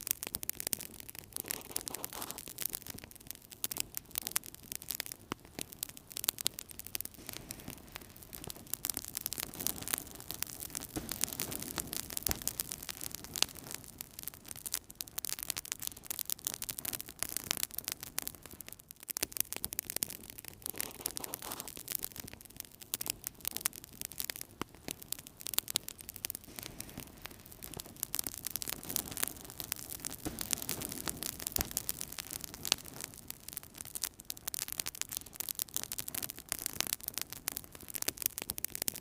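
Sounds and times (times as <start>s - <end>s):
wood fire crackling: 0.0s - 39.0s
soft rush of flame: 0.8s - 3.0s, 3.7s - 14.7s, 20.0s - 22.1s, 24.2s - 34.0s.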